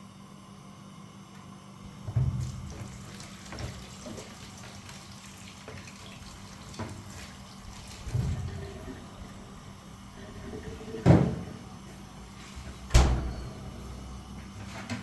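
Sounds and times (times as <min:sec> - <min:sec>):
tap water running into sink: 0:02.1 - 0:11.3
steady low hum: 0:07.5 - 0:14.9.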